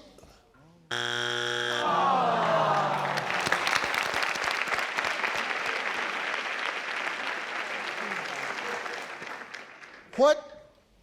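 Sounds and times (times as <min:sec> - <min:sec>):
audience applauding: 0:01.8 - 0:10.2.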